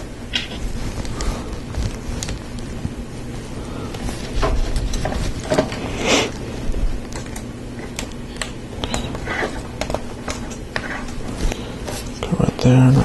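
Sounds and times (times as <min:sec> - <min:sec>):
rustle of plastic parts: 0:00.3 - 0:05.8.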